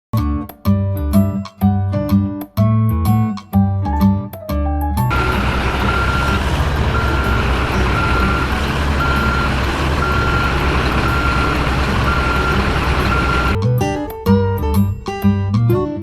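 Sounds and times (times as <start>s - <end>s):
engine rumble: 5.1s - 13.6s
truck reversing alarm beeps: 5.1s - 13.6s.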